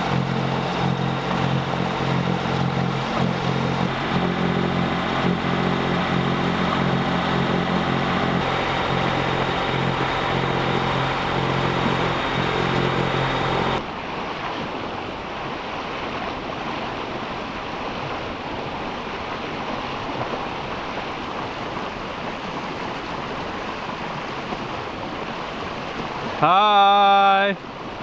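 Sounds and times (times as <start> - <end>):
boat engine droning: 0.0 - 13.8
water rushing: 0.0 - 13.8
wind: 0.0 - 28.0.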